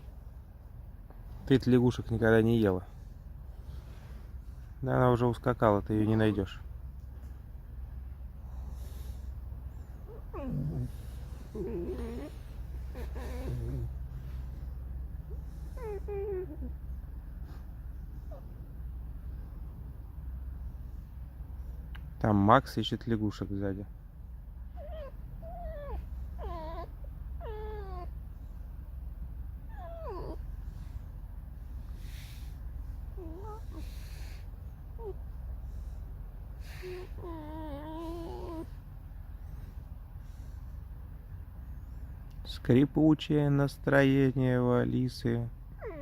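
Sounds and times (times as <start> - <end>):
fox whining calls: 9.9 - 14.3, 15.2 - 16.8, 24.8 - 28.2, 29.6 - 30.5, 32.0 - 35.2, 36.6 - 38.8, 45.8 - 46.0
fox squeaking calls: 11.6 - 13.9.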